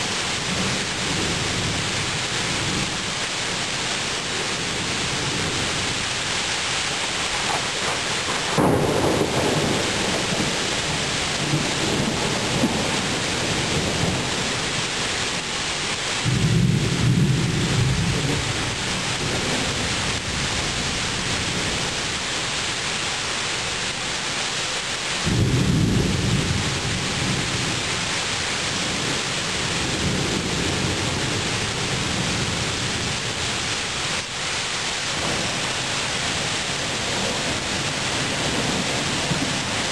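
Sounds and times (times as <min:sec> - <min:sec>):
steady rain falling: 0:00.0 - 0:39.9
thunder rolling: 0:04.6 - 0:15.4, 0:16.2 - 0:20.2, 0:35.1 - 0:39.9.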